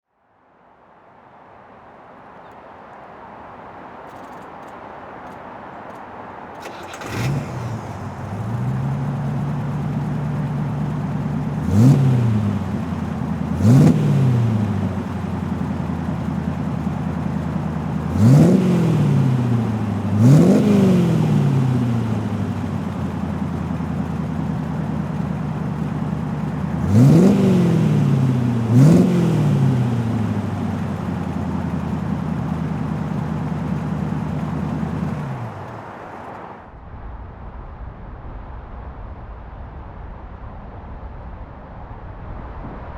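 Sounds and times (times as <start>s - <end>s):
engine throttle blips revving: 6.6s - 35.9s
car engine starting up: 6.6s - 36.4s.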